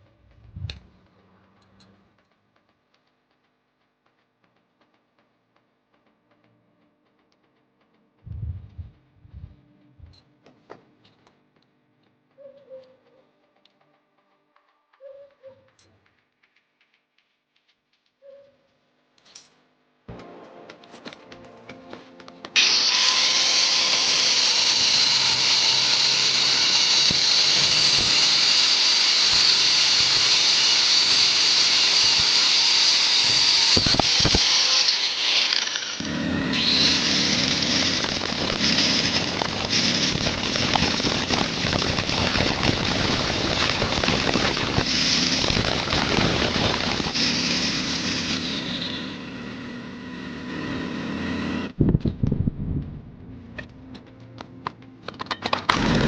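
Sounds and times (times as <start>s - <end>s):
power tool working metal: 22.5s - 51.8s, 55.7s - 56.0s
heavier rough grinding: 35.6s - 51.5s.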